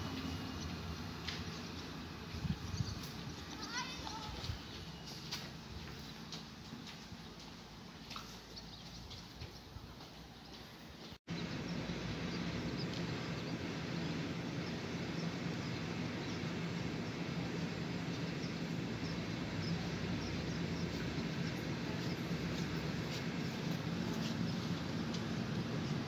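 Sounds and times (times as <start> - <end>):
electric train humming: 0.0 - 4.3, 11.3 - 26.0.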